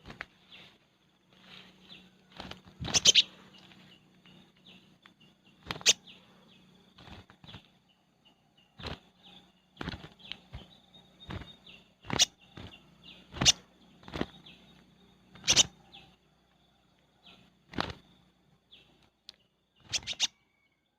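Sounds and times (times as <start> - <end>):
bird sharp call notes: 15.4 - 15.7.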